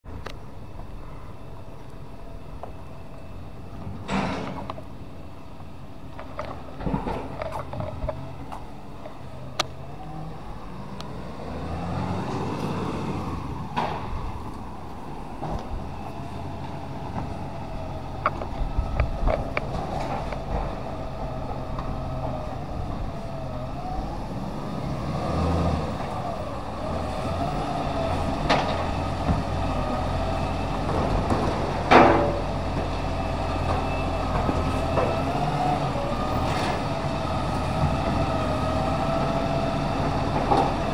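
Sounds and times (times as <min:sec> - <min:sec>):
garbage truck engine running: 0:11.6 - 0:40.9.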